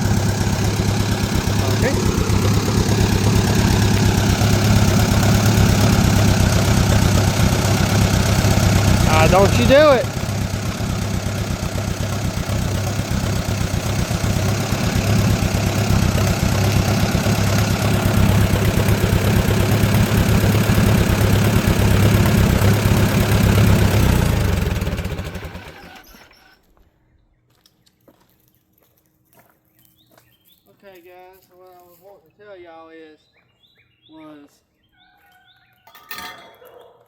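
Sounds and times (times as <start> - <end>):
lawn mower engine running: 0.0 - 26.6.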